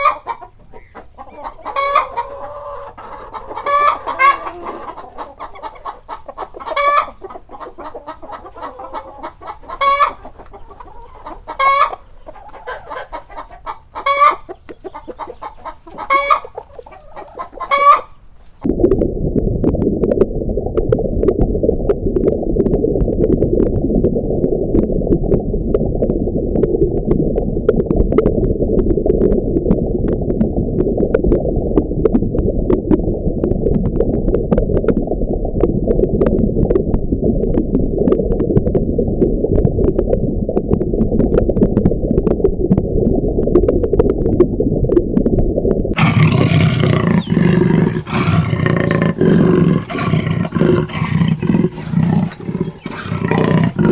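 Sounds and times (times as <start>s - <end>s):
large animal roaring and growling: 46.0s - 53.9s.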